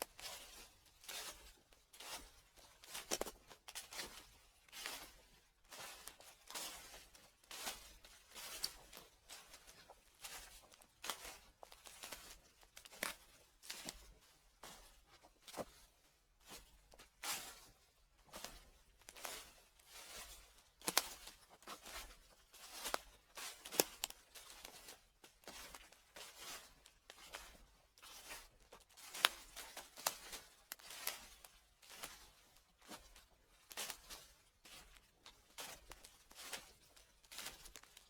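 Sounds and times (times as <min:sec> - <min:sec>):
footsteps on dry leaves: 0:35.6 - 0:38.0.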